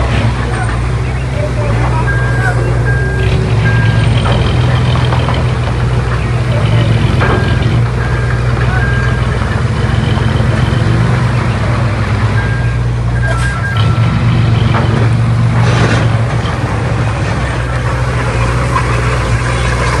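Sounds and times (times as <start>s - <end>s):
heavy diesel engine running: 0.0s - 20.0s
reversing alarm beeps: 2.0s - 4.4s, 7.2s - 9.4s, 12.4s - 14.3s.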